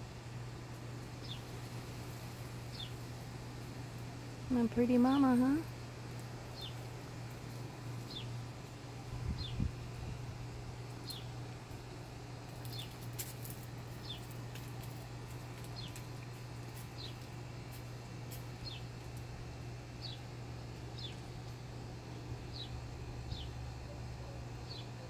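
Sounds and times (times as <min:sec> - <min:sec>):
steady low hum: 0:00.0 - 0:25.0
bird chirping: 0:20.0 - 0:20.3, 0:22.5 - 0:23.6, 0:24.2 - 0:25.0.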